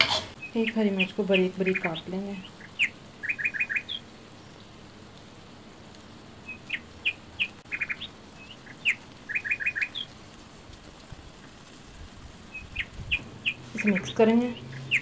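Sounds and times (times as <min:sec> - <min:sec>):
faint steady hiss: 0:00.0 - 0:15.0
bird chirping: 0:00.3 - 0:04.8, 0:06.4 - 0:10.1, 0:12.5 - 0:15.0.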